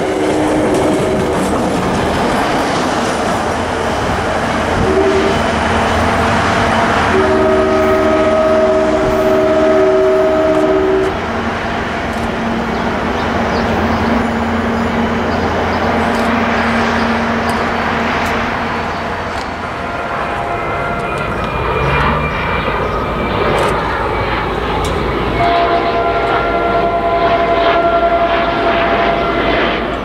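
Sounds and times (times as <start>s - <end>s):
train rumbling on rails: 0.0s - 30.0s
train air horn chord: 4.8s - 5.6s, 7.0s - 11.3s, 19.5s - 23.0s, 25.2s - 29.9s.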